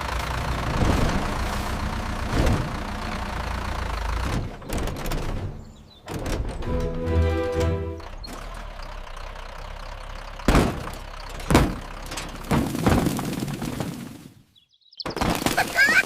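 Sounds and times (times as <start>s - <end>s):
heavy thumps: 10.5s - 14.0s.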